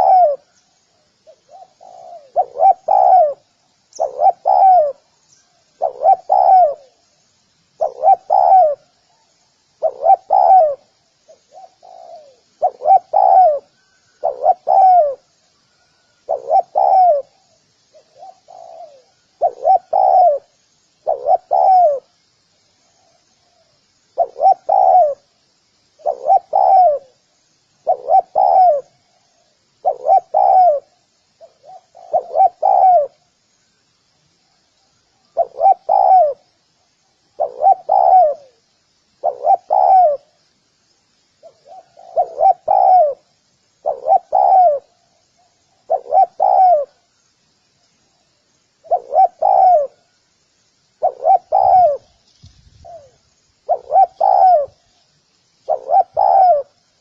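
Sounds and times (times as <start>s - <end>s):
dove cooing: 0.0s - 0.6s, 1.2s - 7.0s, 7.8s - 22.1s, 23.0s - 25.3s, 26.0s - 27.2s, 27.8s - 33.3s, 35.3s - 36.5s, 37.3s - 38.6s, 39.2s - 40.4s, 41.4s - 47.1s, 48.8s - 50.2s, 51.0s - 52.2s, 52.8s - 54.9s, 55.7s - 56.8s.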